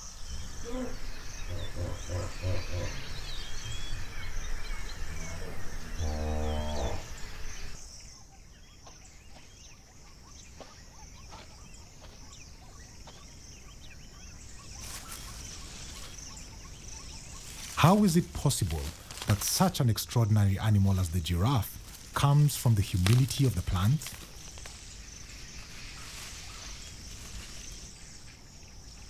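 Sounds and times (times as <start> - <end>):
birdsong: 0.0 - 29.0
high insect trill: 0.0 - 29.0
large animal deep calls and grunts: 0.6 - 3.3.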